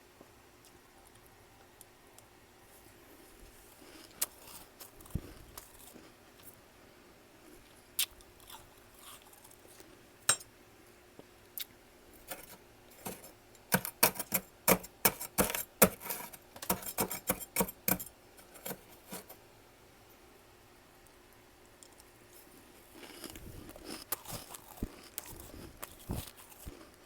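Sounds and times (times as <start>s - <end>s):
freezer frost crunching: 2.9s - 6.5s, 7.4s - 10.0s, 11.6s - 19.4s, 22.3s - 27.0s.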